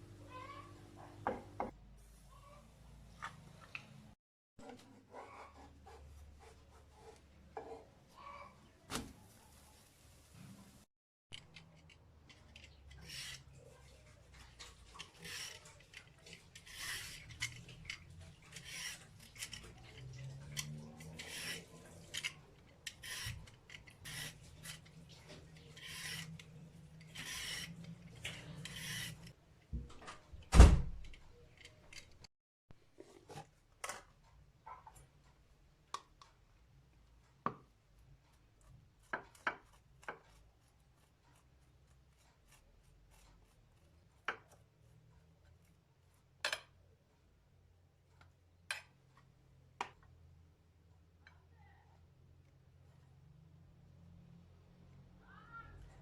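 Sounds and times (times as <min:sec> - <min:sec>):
rubbing or scraping strokes: 0:11.8 - 0:29.4.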